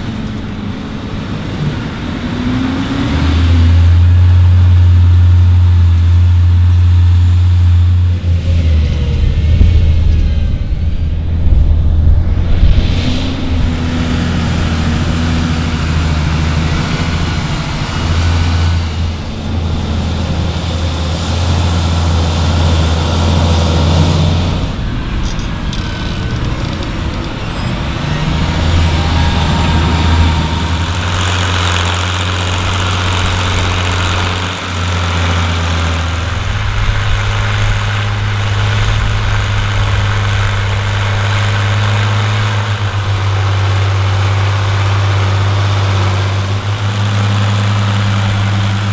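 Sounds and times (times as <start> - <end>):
heavy diesel engines running: 0.0 - 48.9.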